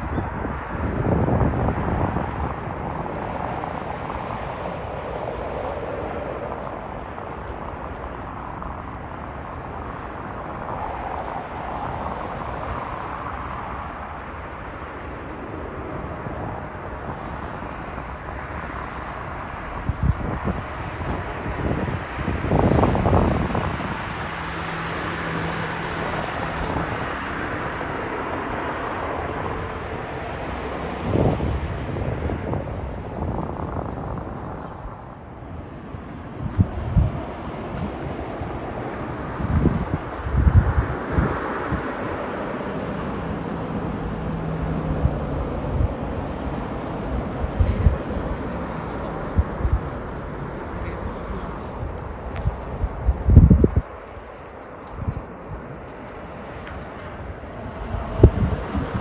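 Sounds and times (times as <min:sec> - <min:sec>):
distant engine rumble: 0:00.0 - 0:59.0.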